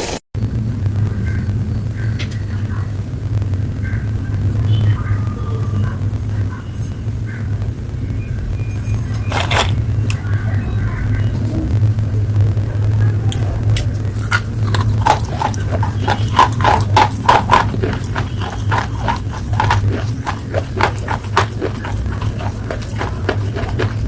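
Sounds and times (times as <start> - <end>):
steady low hum: 0.4 - 24.0
crunching and chewing slate pencil: 9.3 - 9.8, 14.2 - 24.0.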